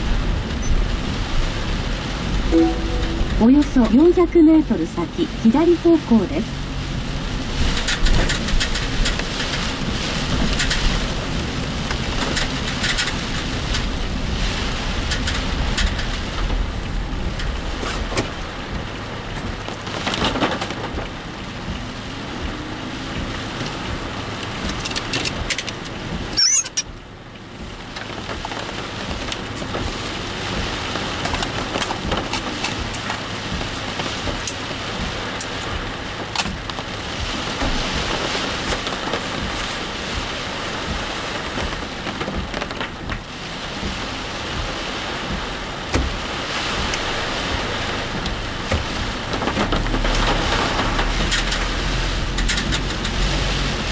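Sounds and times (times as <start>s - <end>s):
heavy rain drumming on car: 0.0s - 53.9s
brief high squeak: 26.4s - 26.8s
tyre hiss on wet road: 42.9s - 53.9s.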